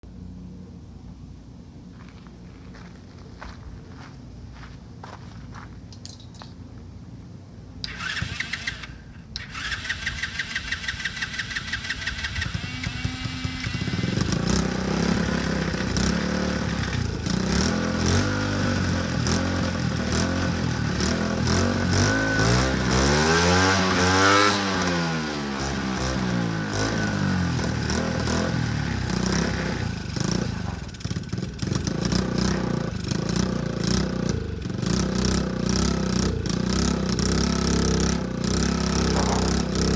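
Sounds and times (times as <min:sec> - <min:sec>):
small engine running: 0:07.8 - 0:39.9.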